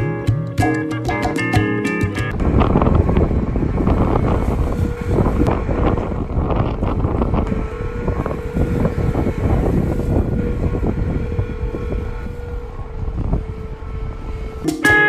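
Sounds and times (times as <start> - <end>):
bridge humming in wind: 2.3 - 15.0
wind rumble on microphone: 2.3 - 15.0.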